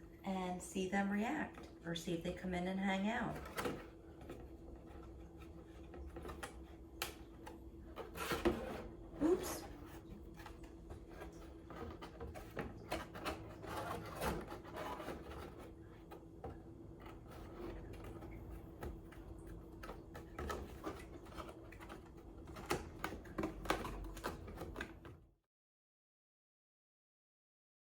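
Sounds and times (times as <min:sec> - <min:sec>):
cardboard being handled: 0:03.2 - 0:25.1.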